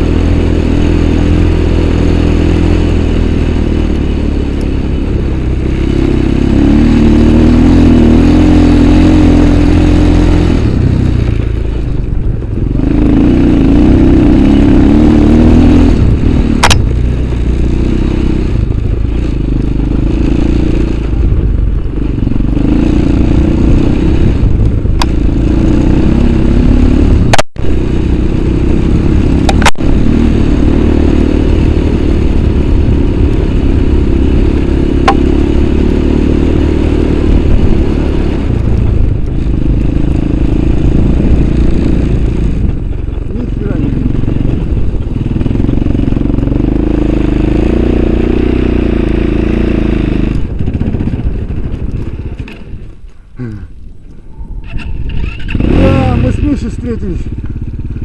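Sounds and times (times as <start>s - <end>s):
motorcycle engine revving: 0.0s - 58.0s
sharp clicks: 16.6s - 17.4s, 29.4s - 29.8s.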